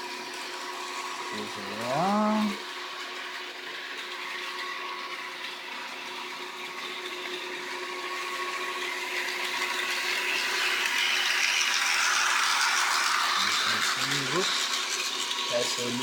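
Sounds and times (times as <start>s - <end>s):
model train motor hum: 0.0s - 16.0s
wheel and rail noise: 0.0s - 16.0s.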